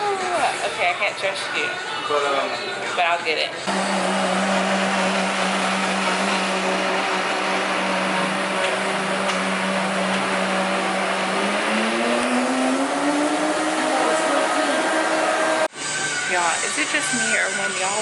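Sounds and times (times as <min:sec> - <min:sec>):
electric blender running: 0:03.7 - 0:18.0.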